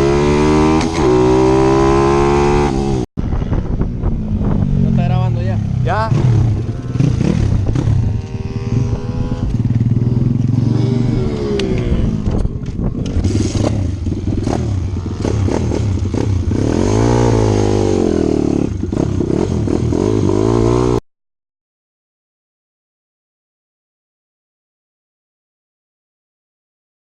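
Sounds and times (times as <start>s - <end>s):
motorbike engines revving: 0.0s - 21.0s.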